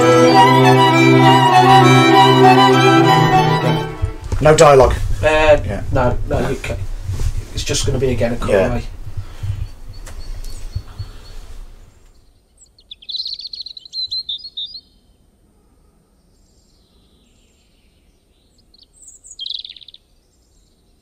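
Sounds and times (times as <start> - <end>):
low room rumble: 3.6 - 10.0
bird trilling: 12.6 - 15.0.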